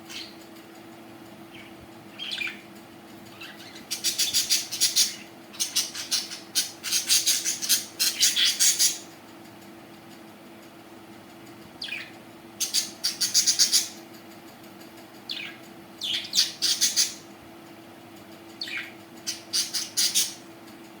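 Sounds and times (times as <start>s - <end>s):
faint steady hum: 0.0s - 21.0s
budgerigars chirping: 1.5s - 2.6s, 3.3s - 9.1s, 11.8s - 14.0s, 15.3s - 17.2s, 18.6s - 20.4s.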